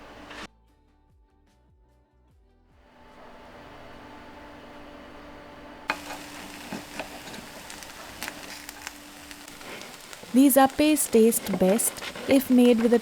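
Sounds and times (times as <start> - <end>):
batter sizzling in a pan: 5.9 - 13.0.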